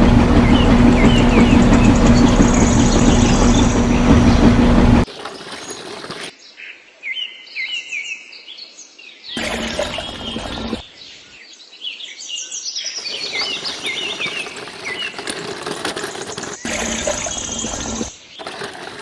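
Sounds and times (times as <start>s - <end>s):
rushing outdoor background: 0.0s - 6.3s
small birds chirping: 0.4s - 4.5s, 9.4s - 19.0s.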